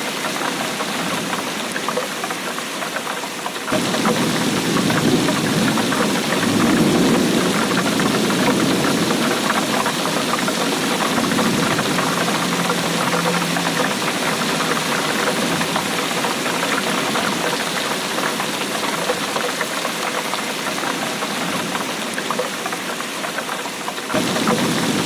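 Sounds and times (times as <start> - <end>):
steady rainfall: 0.0 - 25.0.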